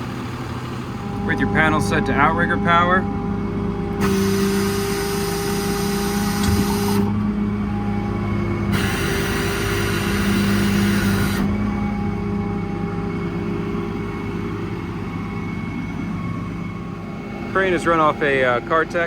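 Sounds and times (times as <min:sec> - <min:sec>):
diesel truck engine humming: 0:00.0 - 0:19.0
loud hydraulic hissing: 0:04.0 - 0:07.2, 0:08.7 - 0:11.5.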